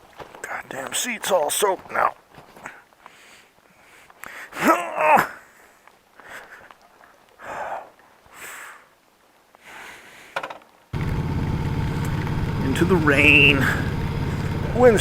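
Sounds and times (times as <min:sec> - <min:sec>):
soft breaths: 0:02.5 - 0:04.6, 0:05.4 - 0:10.4
motorcycle engine running: 0:11.0 - 0:15.0.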